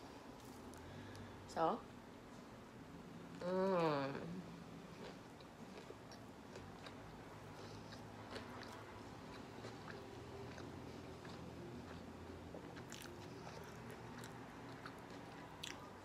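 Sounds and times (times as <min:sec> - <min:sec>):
person chewing: 0:04.9 - 0:16.0.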